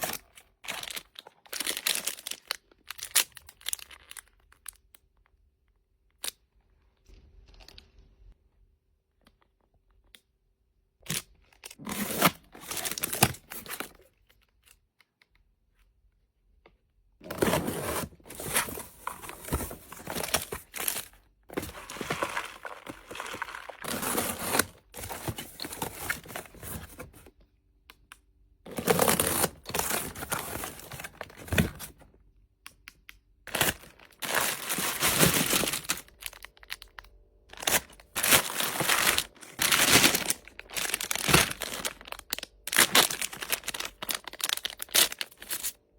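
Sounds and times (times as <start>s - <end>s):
packaging crinkling and tearing: 0.0s - 4.8s, 11.1s - 14.8s, 17.2s - 27.3s, 28.7s - 32.0s, 33.5s - 45.8s.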